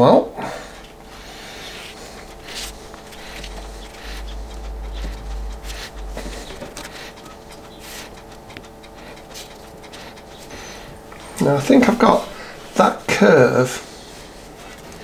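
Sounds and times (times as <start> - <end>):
paper sheet rustling and crackling: 0.8 - 10.3, 11.0 - 15.0
low rumble: 2.1 - 9.6.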